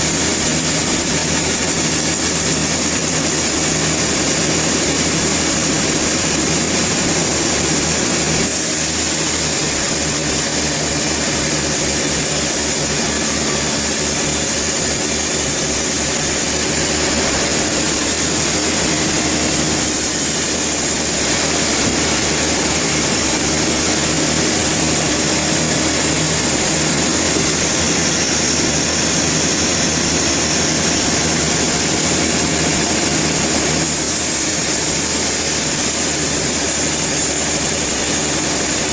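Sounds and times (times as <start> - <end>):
loud high hiss: 0.0 - 38.9
sawmill engine drone: 0.0 - 38.9.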